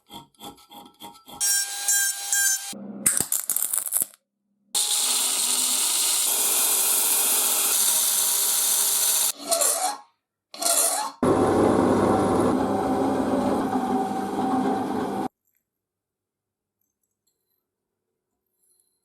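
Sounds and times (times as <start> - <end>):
power tool with low hum: 4.8 - 9.4, 11.2 - 15.3.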